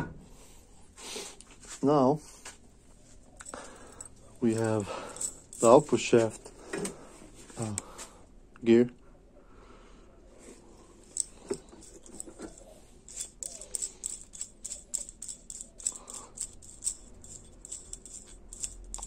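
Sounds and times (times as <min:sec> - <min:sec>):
metal parts clicking and rattling: 0:03.4 - 0:06.4, 0:11.0 - 0:19.0.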